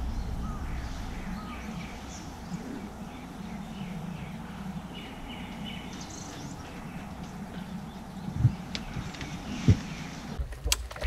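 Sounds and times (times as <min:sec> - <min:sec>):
wild birds chirping: 0:00.0 - 0:10.4
low outdoor rumble: 0:00.0 - 0:11.0.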